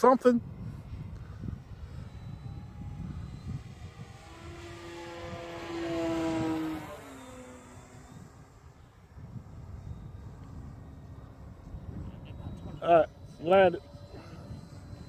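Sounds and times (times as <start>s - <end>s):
model plane motor whine: 0.4s - 15.0s.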